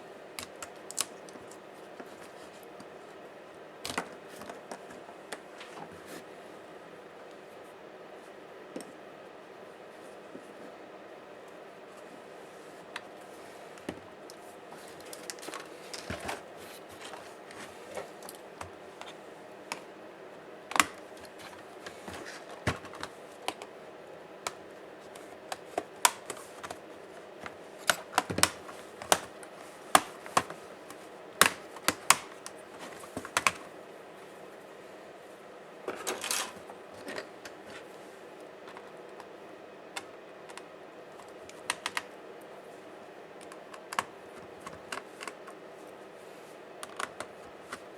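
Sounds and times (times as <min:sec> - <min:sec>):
faint steady hum: 0:00.0 - 0:47.9
clicks of laptop parts handled: 0:00.4 - 0:01.6, 0:03.8 - 0:05.9, 0:14.9 - 0:16.4, 0:20.7 - 0:23.7, 0:24.4 - 0:26.8, 0:27.4 - 0:33.7, 0:40.0 - 0:42.1, 0:43.4 - 0:45.6, 0:46.8 - 0:47.9.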